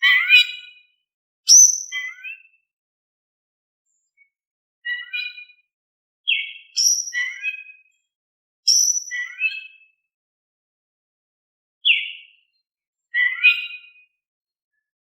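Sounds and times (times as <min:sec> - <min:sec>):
bird singing whistled phrases: 0:01.5 - 0:02.4, 0:06.3 - 0:07.8, 0:08.7 - 0:09.8, 0:11.9 - 0:12.3.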